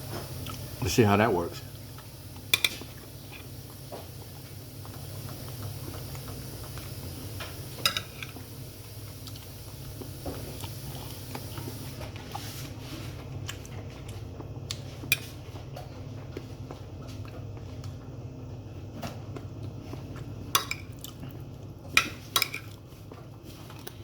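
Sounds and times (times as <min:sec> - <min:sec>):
steady low hum: 0:00.0 - 0:24.0
chewing: 0:00.2 - 0:00.7, 0:09.2 - 0:11.8, 0:19.3 - 0:21.7
cutlery scraping: 0:02.5 - 0:02.9, 0:07.8 - 0:08.4.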